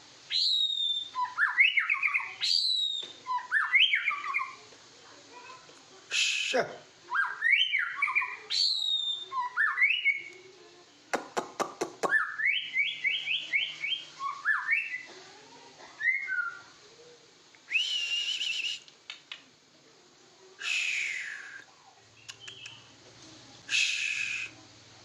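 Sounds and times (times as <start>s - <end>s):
songbird singing whistles: 0.3s - 4.6s, 7.1s - 10.4s, 12.0s - 15.1s, 16.0s - 16.7s, 17.7s - 19.4s, 20.6s - 22.9s, 23.7s - 24.6s
bird sharp clicks: 11.2s - 12.2s, 18.8s - 19.5s, 22.2s - 22.8s.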